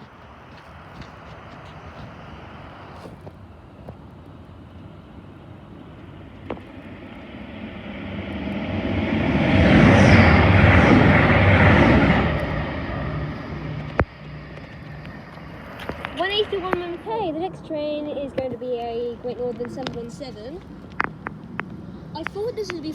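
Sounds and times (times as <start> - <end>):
train passing at speed: 4.9 - 22.9.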